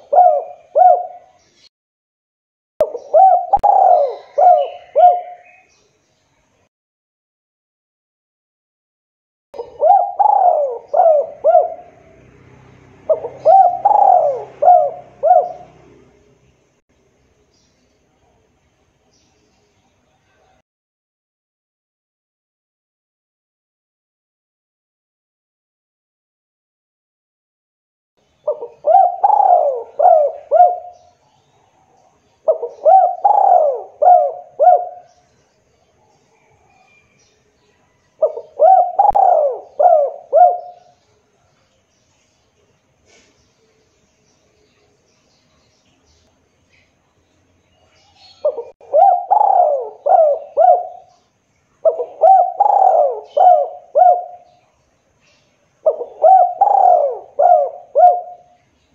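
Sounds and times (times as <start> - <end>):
dove cooing: 0.0 - 1.4, 2.8 - 5.7, 9.6 - 12.3, 13.0 - 16.2, 28.4 - 31.2, 32.4 - 35.2, 38.2 - 41.0, 48.1 - 51.2, 51.8 - 54.6, 55.8 - 58.6.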